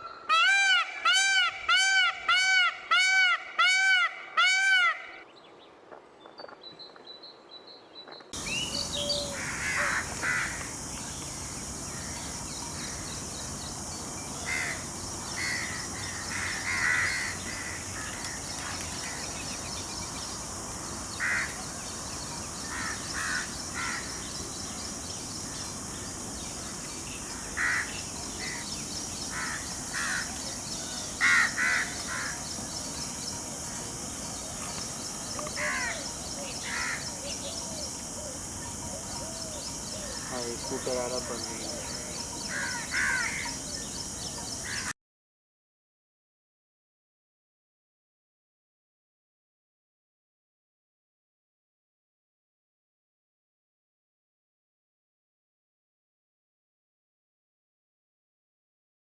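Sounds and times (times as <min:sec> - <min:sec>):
birds harsh caw-like calls: 0:08.4 - 0:13.4, 0:14.4 - 0:33.0, 0:34.7 - 0:38.4, 0:39.0 - 0:43.9, 0:44.6 - 0:44.9
steady high hiss: 0:08.4 - 0:44.9.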